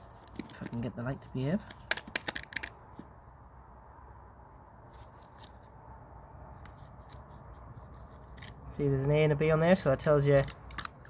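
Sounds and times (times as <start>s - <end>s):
handling noise: 0.0s - 3.2s.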